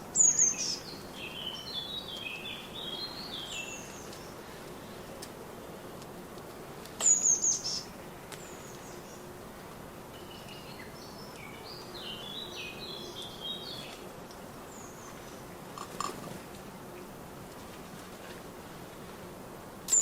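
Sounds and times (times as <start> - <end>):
songbirds calling and singing: 0.0 - 4.6, 7.0 - 9.3, 10.1 - 15.5
steady background hiss: 0.0 - 20.0.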